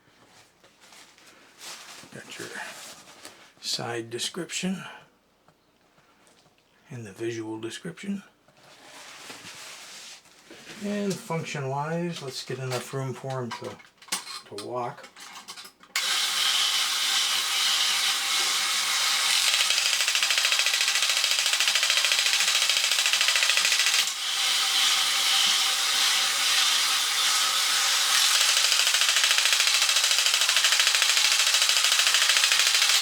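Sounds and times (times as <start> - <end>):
toy robot ratcheting clatter: 16.0 - 33.0.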